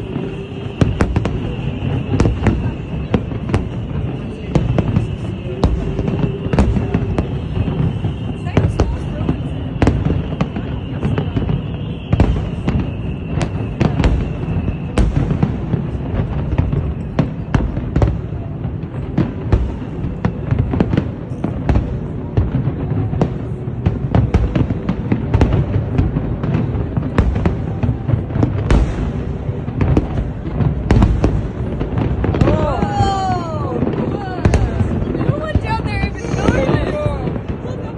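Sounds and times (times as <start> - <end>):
faint high descending whistle: 0.0 - 17.4
deep rumble of fireworks booms: 0.0 - 37.9
fireworks cracking and popping: 0.0 - 37.9.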